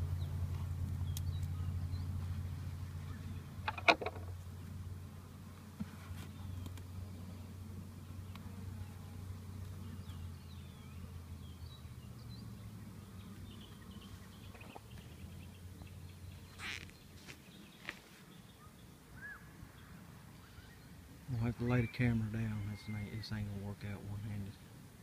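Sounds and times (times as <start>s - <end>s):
honeybees humming: 0.0s - 25.0s
faint bird chirps: 9.8s - 24.0s.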